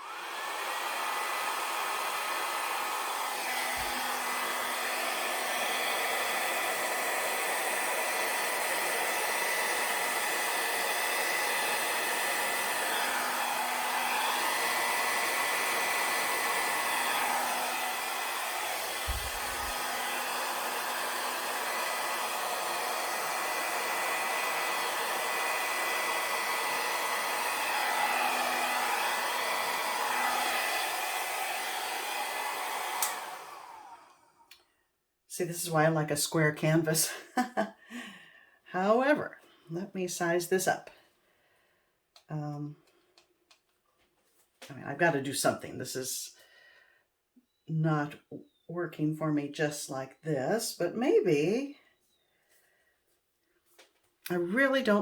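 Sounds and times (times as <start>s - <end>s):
hair dryer running: 0.0s - 34.5s, 53.7s - 55.0s.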